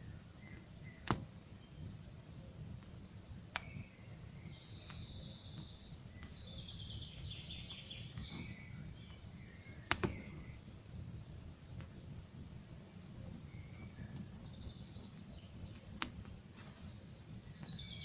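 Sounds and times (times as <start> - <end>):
campfire crackling and popping: 0.1 - 6.6, 7.6 - 17.8
songbird trilling: 16.6 - 18.0.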